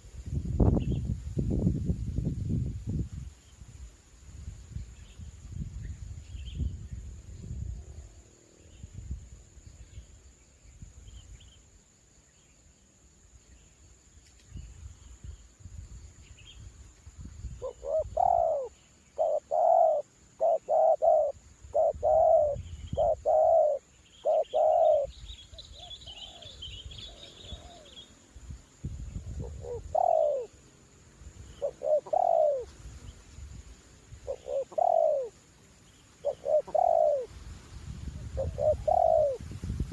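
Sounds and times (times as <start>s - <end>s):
wind rumbling on microphone: 0.0s - 11.6s, 14.3s - 23.8s, 24.4s - 30.4s, 36.4s - 39.9s
small birds chirping: 16.2s - 28.3s, 29.0s - 30.7s, 31.3s - 33.4s, 34.0s - 37.4s, 38.2s - 39.4s
dove cooing: 17.6s - 25.1s, 29.4s - 30.5s, 31.6s - 32.7s, 34.2s - 35.3s, 36.2s - 37.3s, 38.2s - 39.4s.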